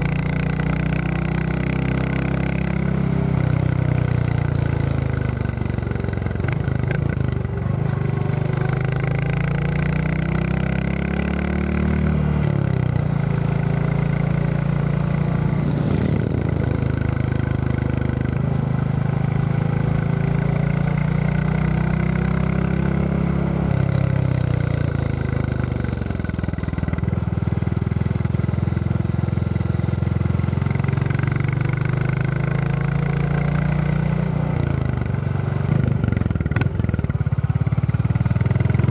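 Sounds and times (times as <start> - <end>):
road hiss: 15.1 - 19.3
wind noise: 15.4 - 18.6.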